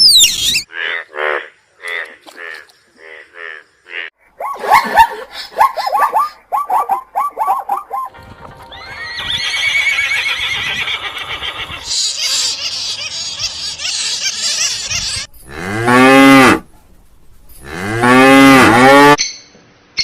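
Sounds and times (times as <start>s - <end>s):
small birds chirping: 11.3s - 15.5s.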